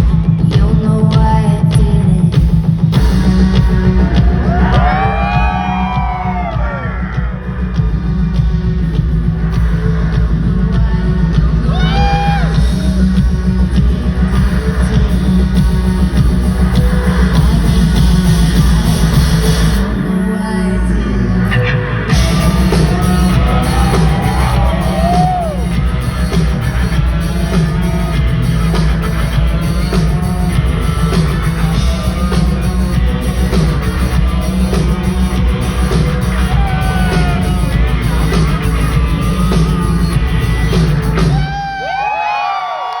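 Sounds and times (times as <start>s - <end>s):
people yelling and whooping: 4.2s - 7.2s, 11.7s - 12.6s, 22.1s - 33.0s, 35.7s - 43.0s
live band playing: 21.8s - 41.6s.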